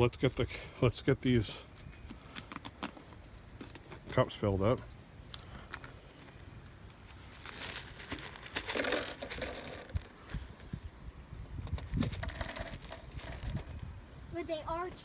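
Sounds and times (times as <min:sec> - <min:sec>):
bag crinkling: 0:06.7 - 0:10.4
cereal rattling into cups: 0:07.1 - 0:10.2, 0:11.8 - 0:13.8.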